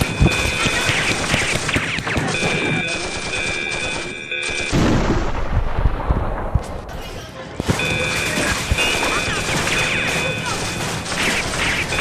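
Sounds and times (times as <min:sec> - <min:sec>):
deep rumbling surge: 0:04.8 - 0:06.9.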